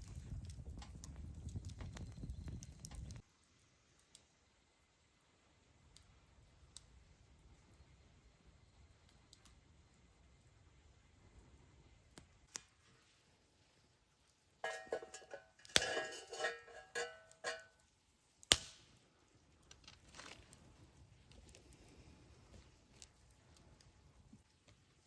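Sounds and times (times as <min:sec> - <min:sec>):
metal utensils clinking: 0:14.6 - 0:17.7.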